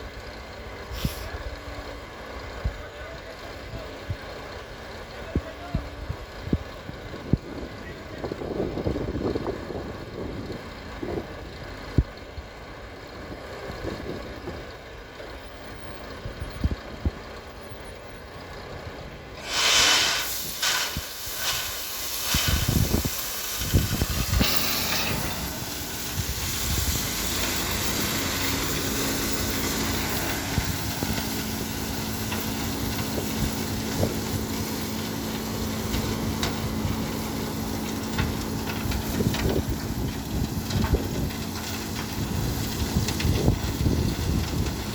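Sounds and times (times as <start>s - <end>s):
heavy truck engine running: 0.0s - 44.9s
loud hissing bursts: 19.4s - 35.8s.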